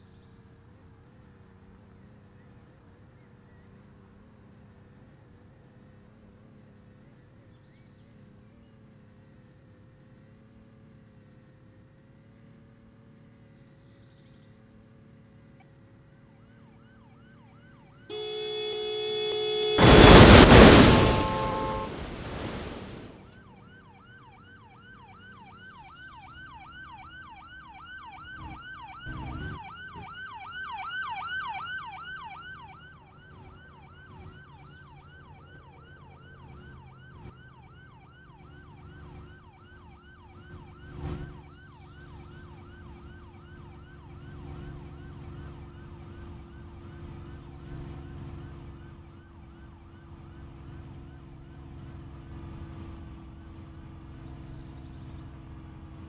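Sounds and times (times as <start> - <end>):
siren yelping: 18.1 - 23.1.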